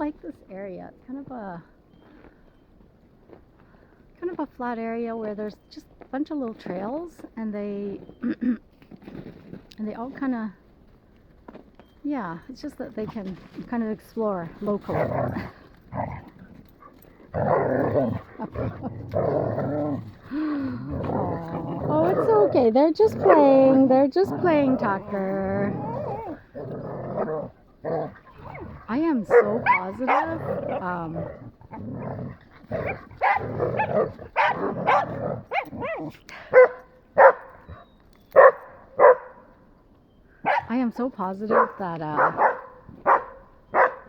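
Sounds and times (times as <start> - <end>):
dogs growling and snarling: 14.5 - 38.0.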